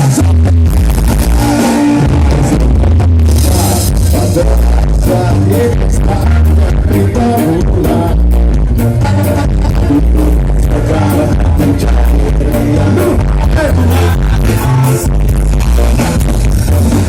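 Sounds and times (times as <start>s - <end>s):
live band music with singing: 0.0s - 17.0s
steady bass: 0.0s - 17.0s.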